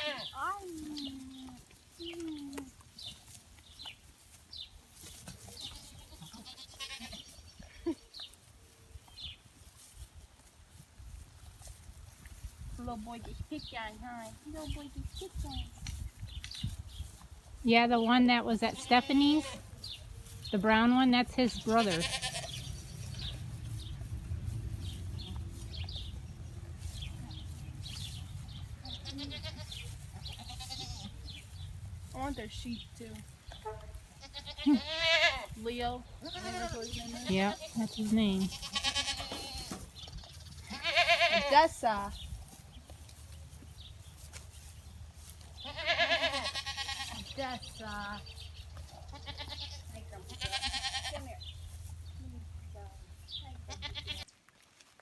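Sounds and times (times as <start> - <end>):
goats bleating: 0.0 - 0.4, 5.6 - 8.0, 18.6 - 19.7, 21.4 - 23.3, 28.9 - 31.3, 33.7 - 35.6, 36.2 - 41.8, 45.6 - 51.4, 53.6 - 54.3
steady low rumble: 22.4 - 30.5.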